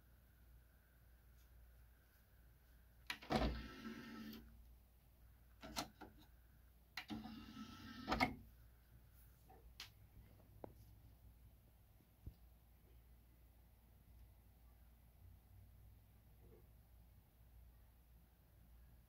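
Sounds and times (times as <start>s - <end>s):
disc tray motor whirring: 3.3s - 4.5s, 7.1s - 8.4s.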